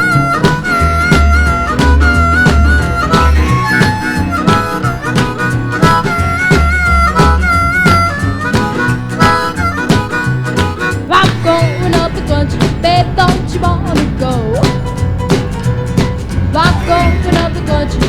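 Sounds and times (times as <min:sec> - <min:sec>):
wind instrument wavering melody: 0:00.0 - 0:11.1
blues-rock band playing: 0:00.0 - 0:18.0.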